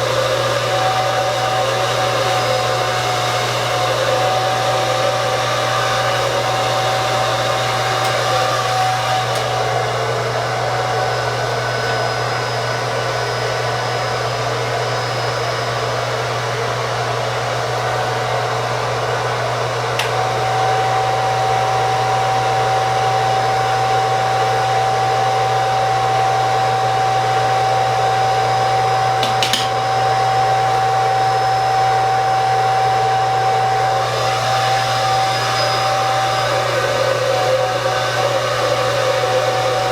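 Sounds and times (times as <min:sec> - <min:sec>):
hair dryer blowing: 0:00.0 - 0:39.9
click: 0:20.0 - 0:20.2.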